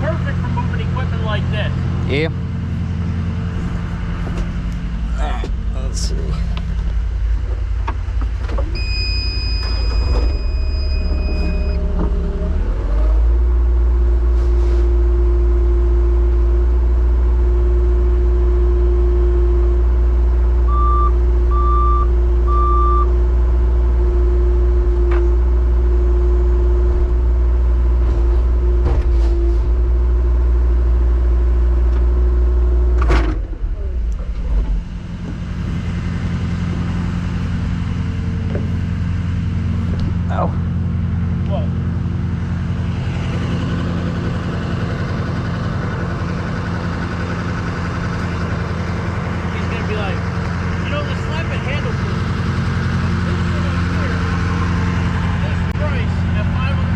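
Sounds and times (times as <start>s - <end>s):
hydraulic whine: 0.0s - 56.9s
truck engine idling: 0.0s - 56.9s
short beeps: 8.8s - 11.9s, 20.7s - 23.1s.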